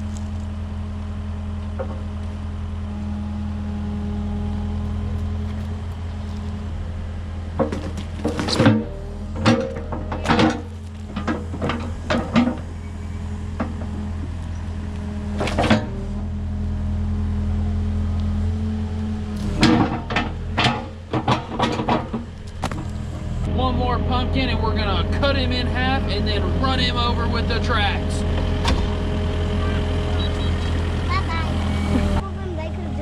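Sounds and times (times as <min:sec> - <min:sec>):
excavator diesel engine running: 0:00.0 - 0:33.0
machine clunks and knocks: 0:01.7 - 0:02.1, 0:07.5 - 0:12.8, 0:15.4 - 0:16.0, 0:19.4 - 0:23.0, 0:28.3 - 0:29.0.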